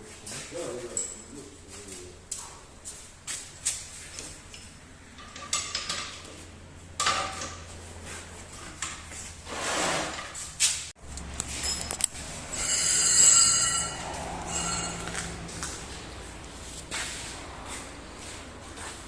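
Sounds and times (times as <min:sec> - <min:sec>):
metal tools clinking: 0:11.2 - 0:15.6.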